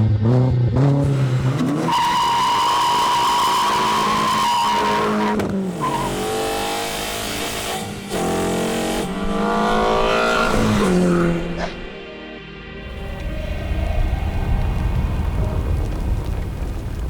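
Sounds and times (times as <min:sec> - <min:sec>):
car engine accelerating hard: 0:00.0 - 0:12.0
high steady squeal: 0:01.8 - 0:06.2.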